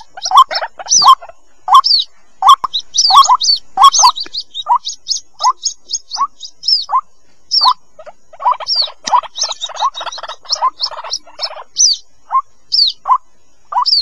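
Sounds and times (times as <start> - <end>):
bird chicks chirping: 0.0 - 14.0.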